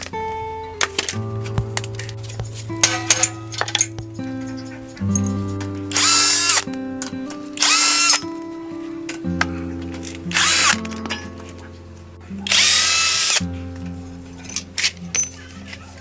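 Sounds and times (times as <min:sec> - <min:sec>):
background music: 0:00.0 - 0:16.0
power tool motor whine: 0:05.9 - 0:06.6, 0:07.6 - 0:08.2, 0:10.3 - 0:10.8, 0:12.5 - 0:13.4.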